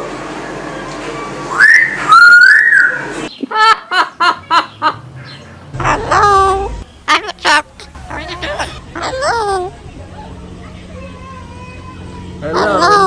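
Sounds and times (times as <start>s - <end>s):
parrot whistling and chirping: 1.5s - 3.4s, 8.0s - 9.7s.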